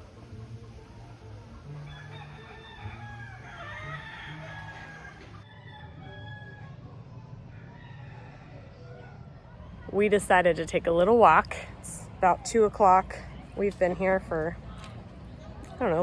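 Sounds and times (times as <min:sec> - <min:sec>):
roosters crowing: 0:01.5 - 0:09.0.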